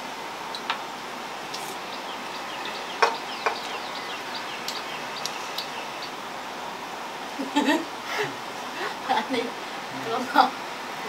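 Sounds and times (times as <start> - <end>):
background hiss: 0.0 - 11.0
birds chirping: 1.5 - 6.3.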